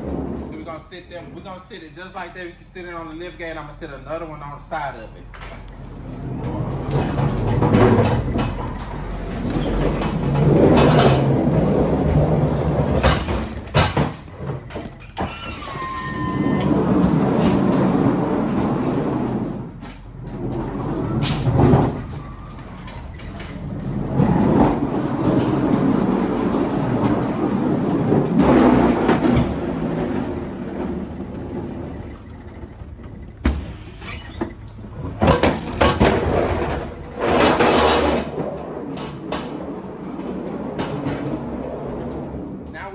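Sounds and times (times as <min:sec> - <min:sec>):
pallets rumbling across trailer floor: 0:00.0 - 0:42.9
clanks and knocks: 0:05.3 - 0:42.8
brief squeal: 0:15.0 - 0:16.9, 0:33.6 - 0:34.6.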